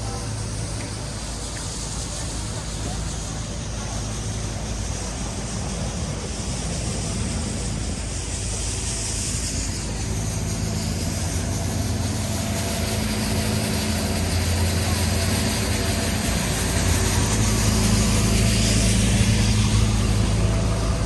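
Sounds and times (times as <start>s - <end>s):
street noise: 0.0s - 21.0s
vehicle engine humming: 0.0s - 21.0s.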